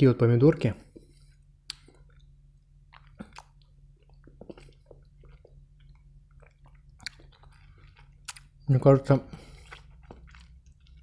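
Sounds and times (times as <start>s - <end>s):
chewing tomato wet squishes: 1.0s - 11.0s.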